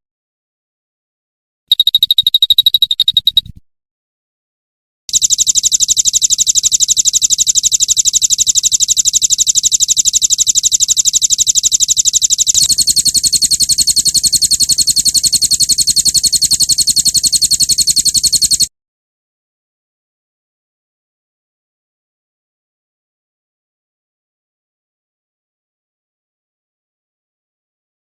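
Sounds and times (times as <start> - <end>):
bird rapid trill: 1.7 - 3.6, 5.1 - 18.7.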